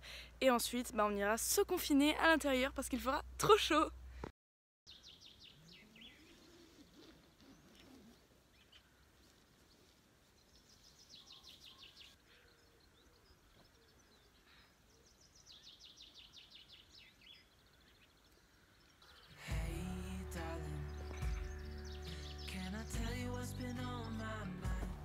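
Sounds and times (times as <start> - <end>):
quiet outdoor ambience: 0.0 - 4.3, 4.9 - 25.0
bird singing fast trill: 4.9 - 6.6, 10.6 - 24.8.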